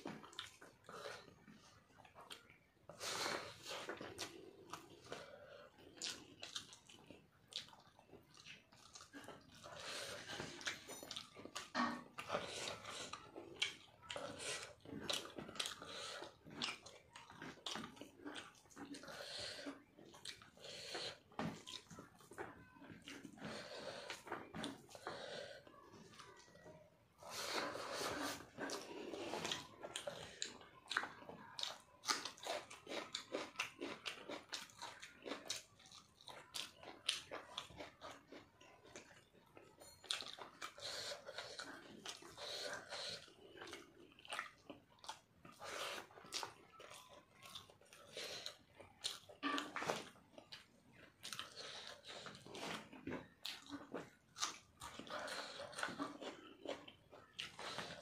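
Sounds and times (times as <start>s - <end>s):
person chewing wetly: 0.0s - 58.0s.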